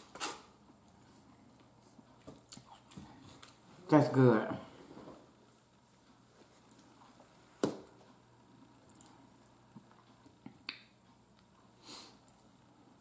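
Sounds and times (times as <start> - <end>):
mouth smacks and clicks chewing: 2.3 - 3.6, 8.8 - 11.5.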